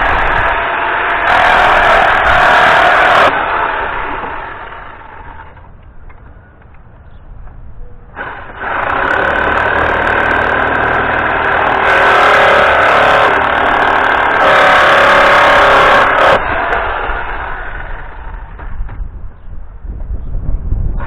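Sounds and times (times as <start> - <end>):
power tool motor running: 0.0 - 5.6, 8.2 - 18.6.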